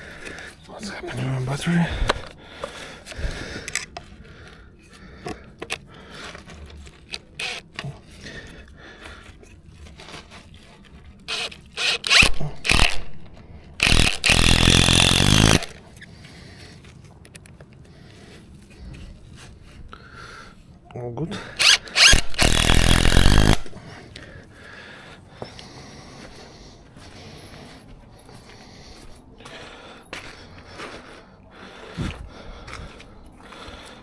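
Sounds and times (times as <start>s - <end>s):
drill being handled clicks: 6.9s - 7.9s, 11.3s - 15.8s, 21.6s - 23.8s
drill driving a screw into wood: 7.4s - 7.6s, 11.3s - 13.2s, 13.8s - 15.8s, 21.6s - 23.8s
drill trigger bursts: 11.3s - 13.2s, 13.8s - 15.8s, 21.6s - 23.8s.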